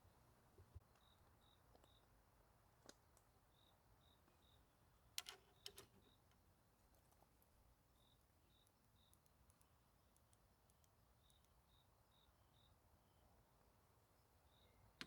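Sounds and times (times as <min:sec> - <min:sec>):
cricket chirping: 0:11.2 - 0:12.8.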